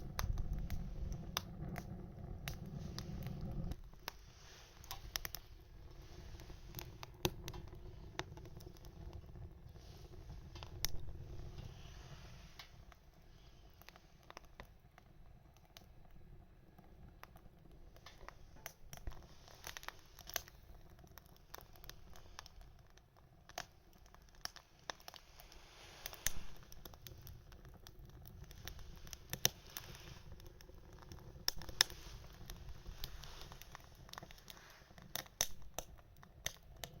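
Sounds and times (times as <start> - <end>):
faint hiss: 0.0 - 14.9, 15.9 - 37.0
wood fire crackling: 0.0 - 37.0
sharp pops: 24.4 - 37.0.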